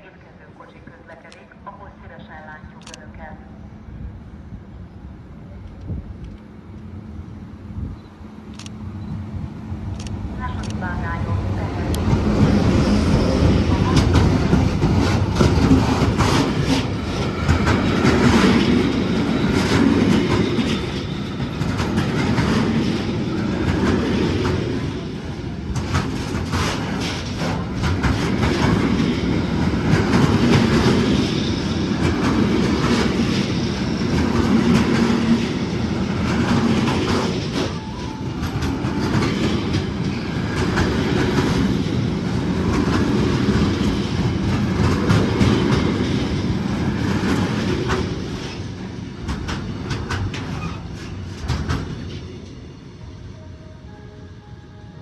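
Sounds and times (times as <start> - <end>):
train rumbling on track: 0.0 - 55.0
wheels clicking over rail joints: 25.6 - 52.6.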